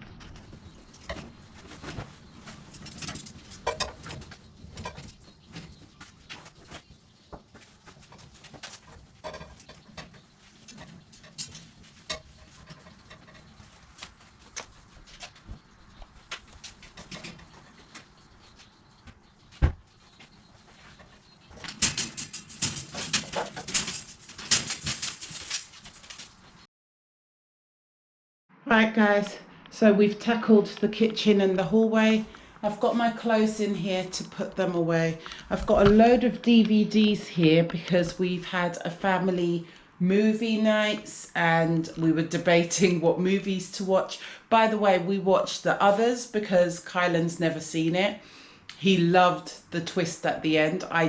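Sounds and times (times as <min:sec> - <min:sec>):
household things clattering and rustling: 0:00.0 - 0:26.6
household items knocking and rustling: 0:20.9 - 0:26.4.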